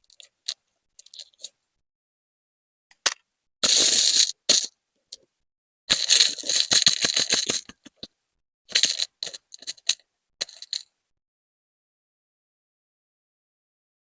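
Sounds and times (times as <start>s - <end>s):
stone beads clicking: 5.9s - 8.1s, 8.7s - 10.9s.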